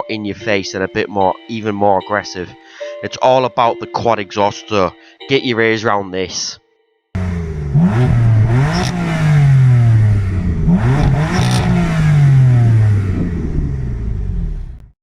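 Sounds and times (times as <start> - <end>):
car engine revving: 7.2 - 14.9.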